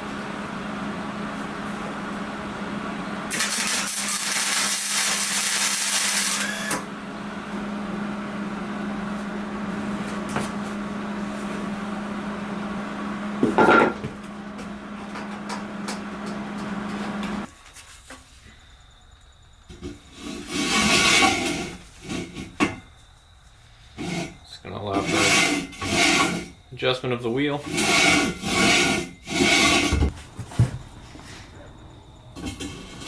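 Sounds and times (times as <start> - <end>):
harsh hissing tool: 3.3 - 6.7.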